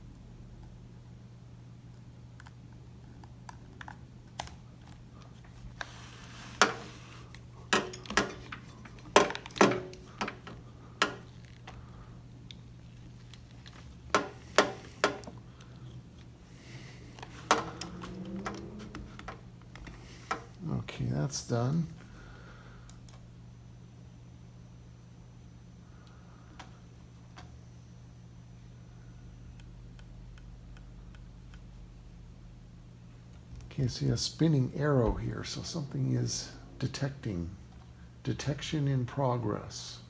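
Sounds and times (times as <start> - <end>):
steady low hum: 0.0 - 40.0
cable connectors clicking: 6.6 - 12.6.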